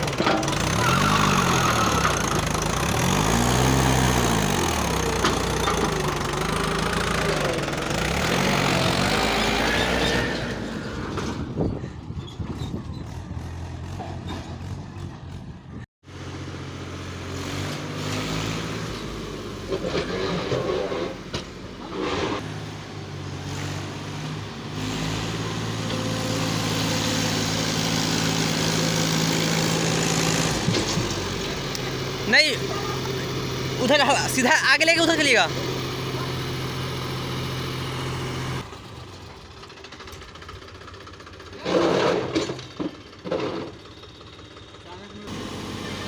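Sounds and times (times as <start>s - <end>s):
tractor engine running: 0.0s - 46.0s
knocks and clatter: 10.3s - 15.4s, 30.4s - 31.6s.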